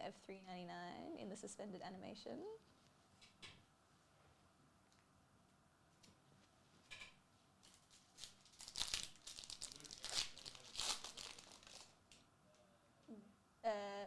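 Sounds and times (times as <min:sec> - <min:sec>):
wrapper tearing and crinkling: 0:07.6 - 0:12.2.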